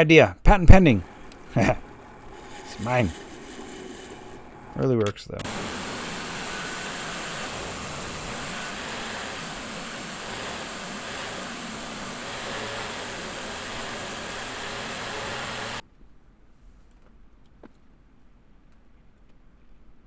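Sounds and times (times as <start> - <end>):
power tool grinding steel: 0.5 - 15.8.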